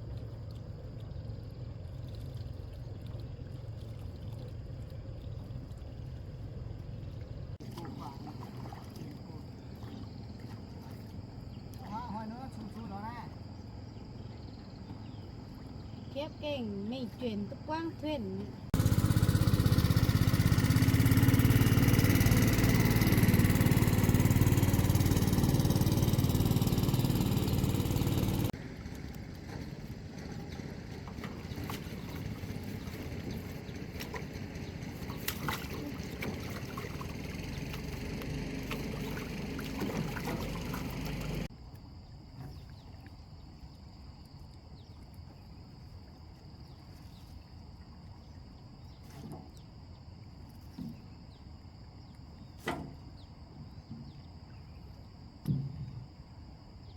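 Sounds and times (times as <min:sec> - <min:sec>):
boat engine running: 0:14.2 - 0:41.5.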